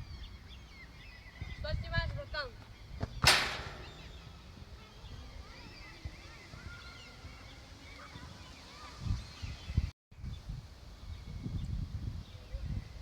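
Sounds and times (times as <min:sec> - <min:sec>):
birds chirping faintly: 0:00.0 - 0:13.0
low thump: 0:03.0 - 0:04.6
wind rumble: 0:08.9 - 0:13.0.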